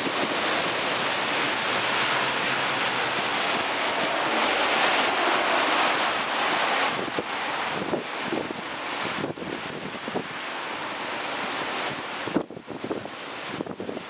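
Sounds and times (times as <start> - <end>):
strong wind rushing: 0.0 - 10.4.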